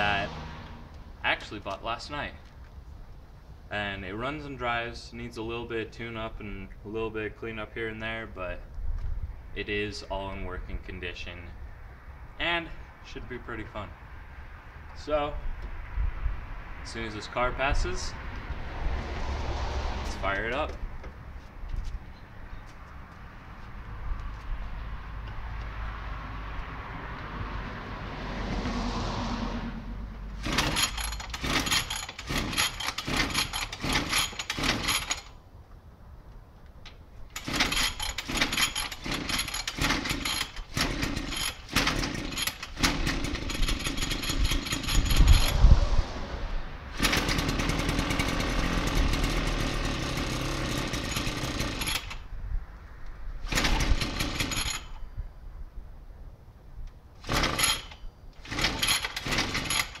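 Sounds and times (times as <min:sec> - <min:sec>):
small two-stroke engine sputtering: 0:30.4 - 0:35.3, 0:37.3 - 0:45.6, 0:47.0 - 0:52.2, 0:53.4 - 0:55.0, 0:57.2 - 1:00.0.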